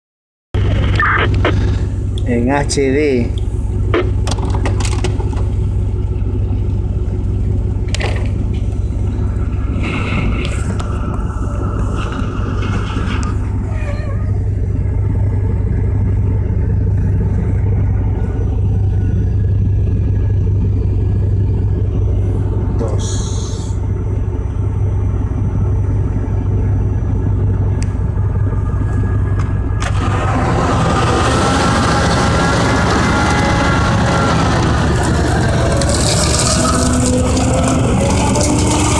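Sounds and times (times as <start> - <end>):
large diesel engine droning: 0.6 - 38.9.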